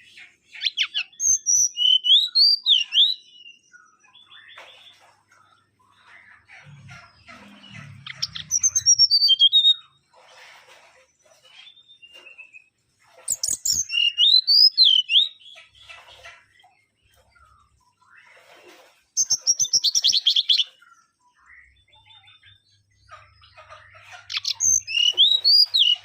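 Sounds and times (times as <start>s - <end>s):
bird singing whistled phrases: 0.6s - 3.6s, 8.2s - 9.8s, 13.3s - 15.4s, 24.3s - 26.0s.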